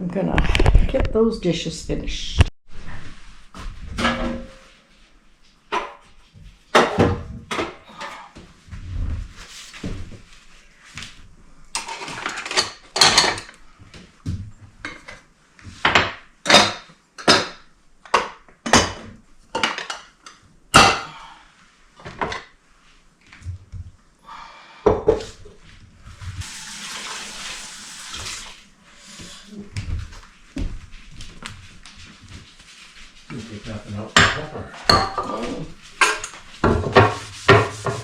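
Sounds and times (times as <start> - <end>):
dishes and cutlery clattering: 4.0 - 4.8, 11.8 - 13.6, 15.9 - 21.1, 34.1 - 38.0.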